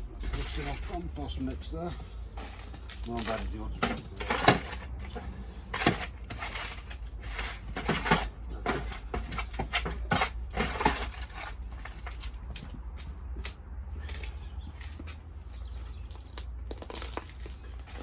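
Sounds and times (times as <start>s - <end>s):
compost scraping and rustling: 0.0s - 12.6s, 16.8s - 18.0s.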